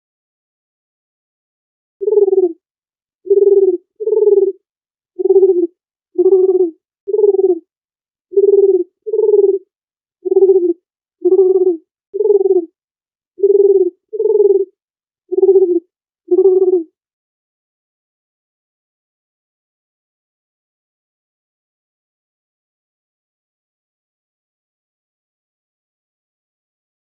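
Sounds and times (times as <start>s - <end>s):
dove cooing: 2.0s - 2.6s, 3.3s - 4.6s, 5.2s - 7.6s, 8.4s - 12.7s, 13.4s - 14.7s, 15.3s - 16.9s.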